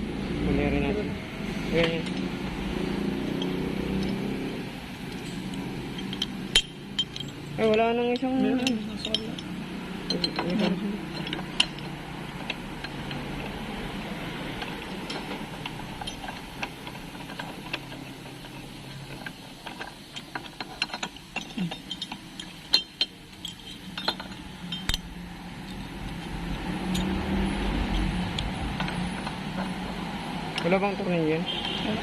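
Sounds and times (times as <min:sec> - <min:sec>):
metal parts and tools clinking: 0:01.6 - 0:32.0.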